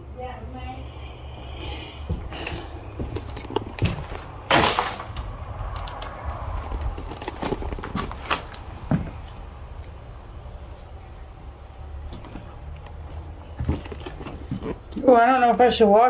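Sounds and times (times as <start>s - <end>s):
footsteps on wooden floor: 2.0s - 4.4s, 6.7s - 9.2s
crunching impact: 2.4s - 9.4s.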